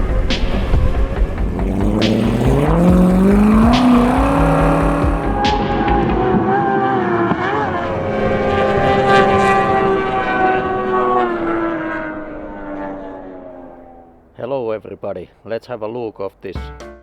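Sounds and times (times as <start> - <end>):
outboard engine at high revs: 0.0 - 5.5.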